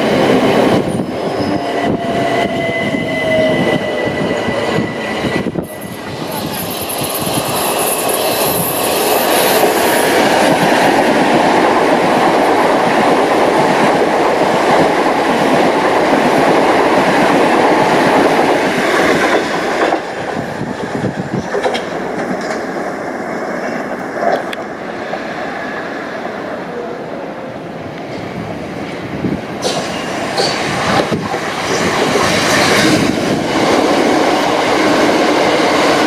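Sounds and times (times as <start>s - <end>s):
train passing: 0.0s - 36.0s.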